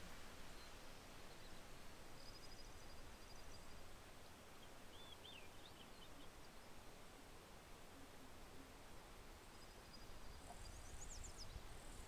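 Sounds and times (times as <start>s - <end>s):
birds twittering: 9.6s - 12.0s.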